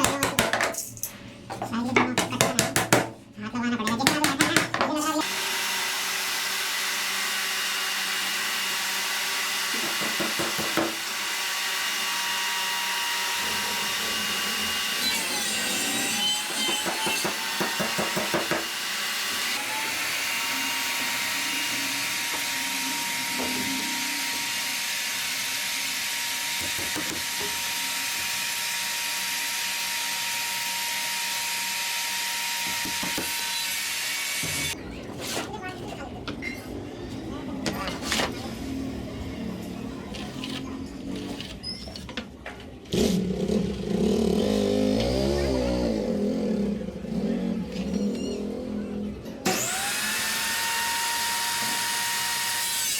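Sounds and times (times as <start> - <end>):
sawing wooden sticks: 5.2 - 35.5, 49.5 - 52.9.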